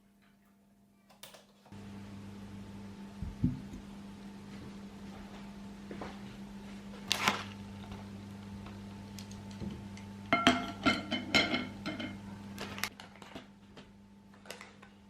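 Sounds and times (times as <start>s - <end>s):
low hum: 1.8s - 12.9s.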